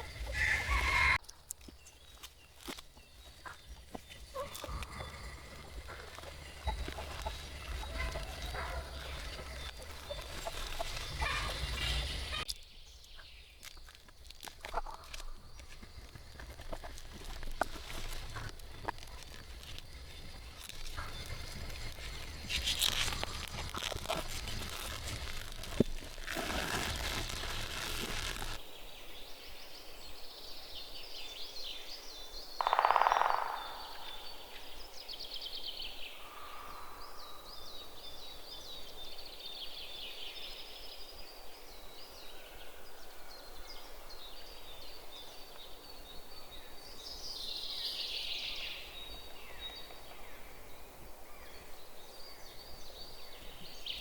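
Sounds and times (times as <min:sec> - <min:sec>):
small birds chirping: 0:00.0 - 0:28.6.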